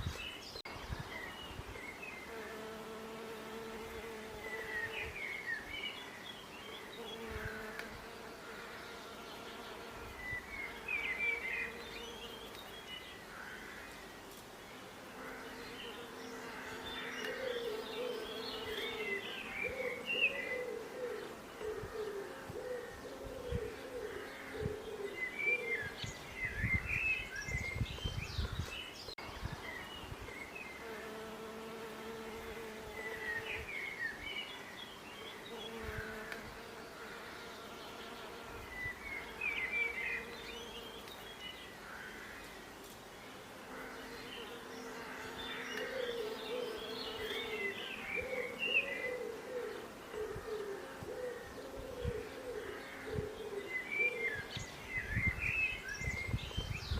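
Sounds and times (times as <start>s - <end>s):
small birds chirping: 0.0s - 56.9s
bees buzzing: 2.2s - 5.1s, 6.9s - 12.6s, 14.7s - 21.6s, 30.7s - 33.7s.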